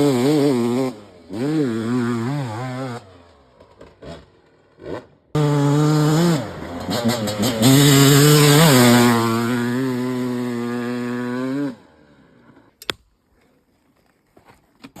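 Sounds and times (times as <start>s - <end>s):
dirt bike engine revving: 0.0s - 12.1s
sharp click: 12.8s - 13.1s.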